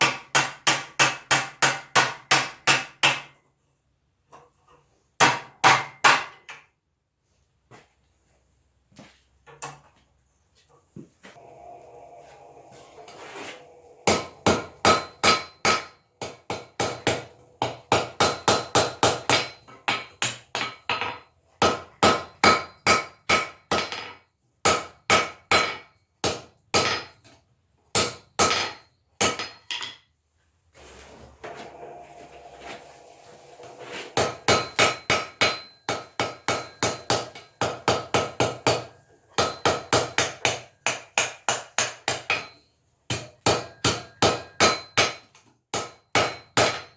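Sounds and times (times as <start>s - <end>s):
hammer striking iron on anvil: 14.0s - 24.1s, 34.2s - 46.9s.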